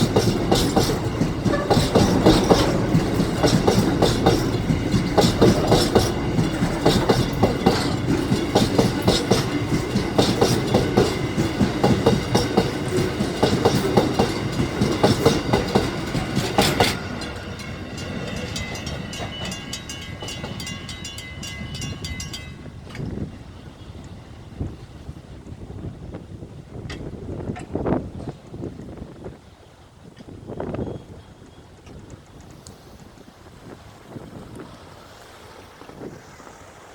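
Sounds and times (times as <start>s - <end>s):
train wheels clacking over rail joints: 0.0s - 23.4s, 26.7s - 29.0s
freight train rumble: 0.0s - 36.9s.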